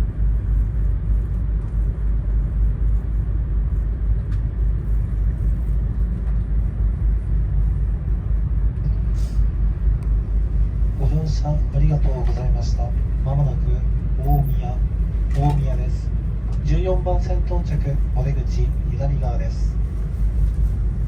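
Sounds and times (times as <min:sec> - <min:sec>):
train running low rumble: 0:00.0 - 0:21.0.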